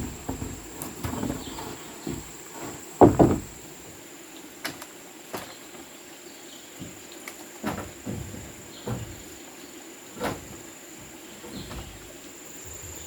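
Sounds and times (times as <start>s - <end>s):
wooden knocks and thuds: 0.0s - 3.7s, 6.8s - 13.0s
high insect whine: 7.8s - 13.0s.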